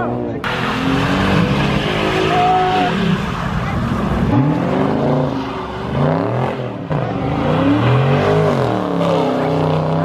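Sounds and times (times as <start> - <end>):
car engine revving hard: 0.5 - 10.0.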